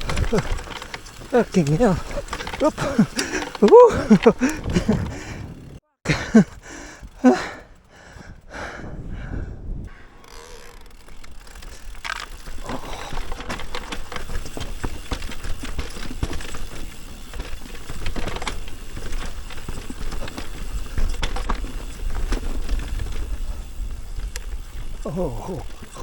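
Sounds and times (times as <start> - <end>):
bike rattling over rough trail: 0.0 - 26.0
low wind rumble on microphone: 8.2 - 9.9.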